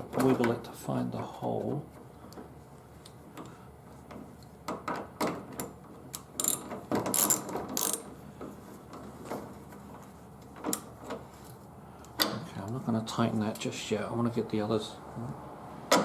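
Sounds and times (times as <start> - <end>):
ratchet wrench clicking: 6.4 - 8.0.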